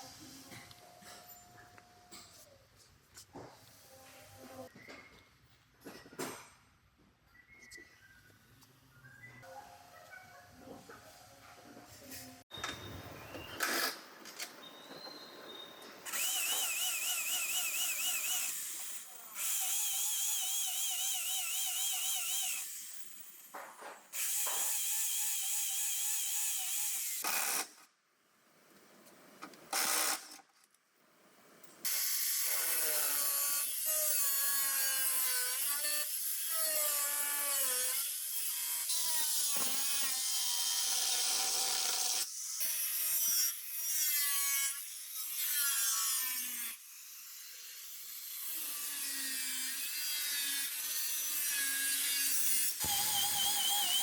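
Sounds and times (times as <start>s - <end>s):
power tools running: 52.8s - 54.0s.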